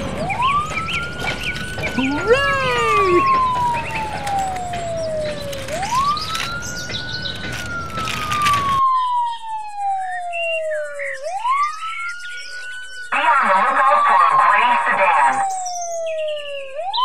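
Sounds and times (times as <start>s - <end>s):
siren wailing: 0.0s - 17.0s
clicks and rustle: 0.8s - 8.8s.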